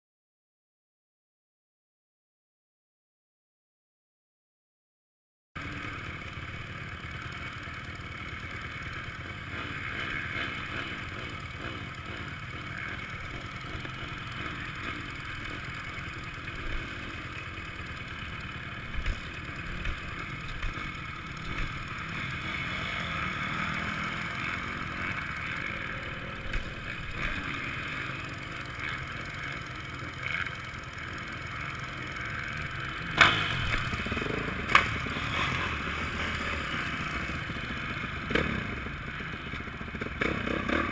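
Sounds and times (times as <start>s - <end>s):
muffled motocross engine: 5.6s - 40.9s.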